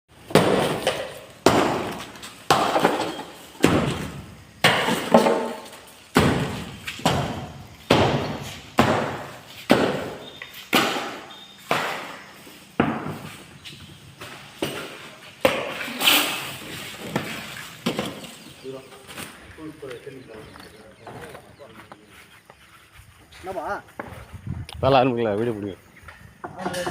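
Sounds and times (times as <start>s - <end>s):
hammer blows ringing: 0.3s - 13.3s.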